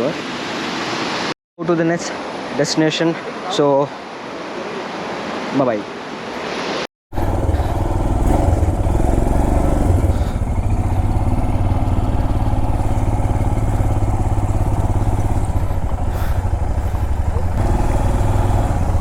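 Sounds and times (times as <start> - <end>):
motorcycle engine low pulsing: 7.2 - 19.0.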